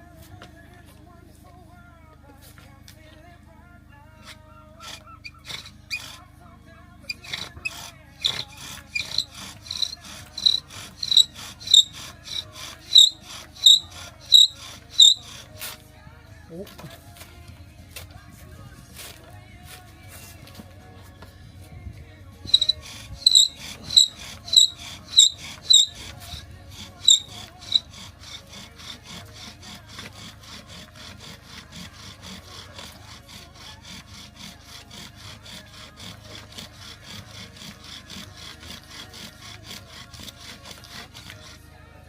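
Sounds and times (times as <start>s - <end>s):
bow drill spindle squeaking: 4.2s - 6.2s, 7.0s - 15.6s, 22.4s - 41.6s.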